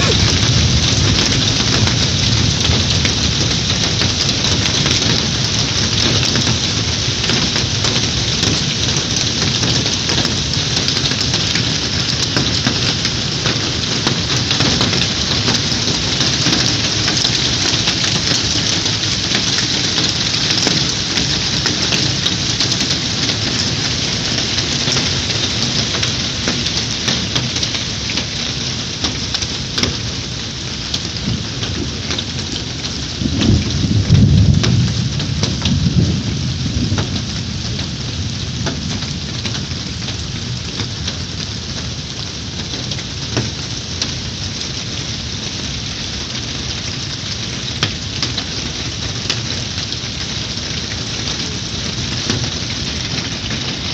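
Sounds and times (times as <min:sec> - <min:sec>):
thunder rolling: 0:00.0 - 0:26.6, 0:31.2 - 0:41.1
raindrops tapping a surface: 0:00.0 - 0:53.9
steady rain: 0:00.0 - 0:53.9.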